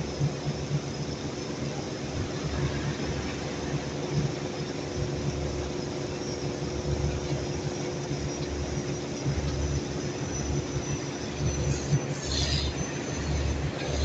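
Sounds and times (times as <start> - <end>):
heavy machinery engine rumble: 6.8 - 14.0.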